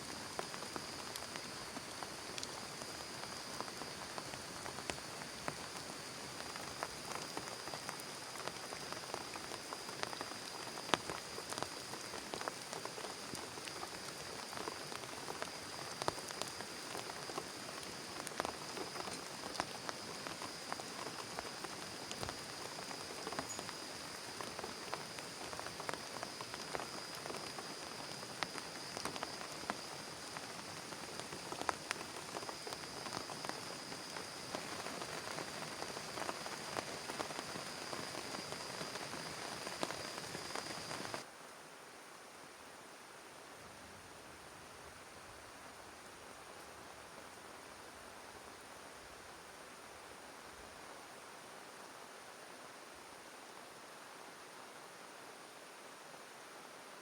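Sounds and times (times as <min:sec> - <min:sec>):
heavy rain on plastic tarp: 0:00.0 - 0:43.5.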